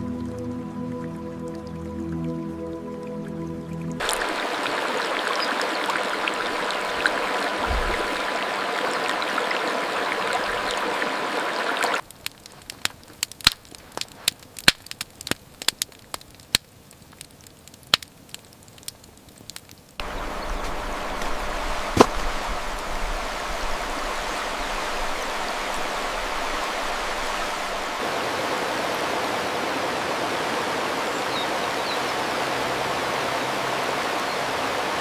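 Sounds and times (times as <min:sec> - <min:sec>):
stream water rushing: 0:00.0 - 0:12.0, 0:20.0 - 0:35.0.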